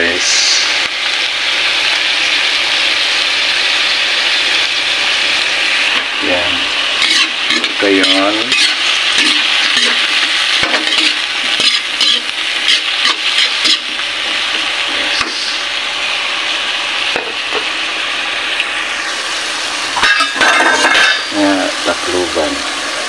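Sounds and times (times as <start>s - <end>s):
vegetables sizzling in a wok: 0.0s - 23.0s
utensil scraping a pan: 6.0s - 15.5s, 20.0s - 21.3s.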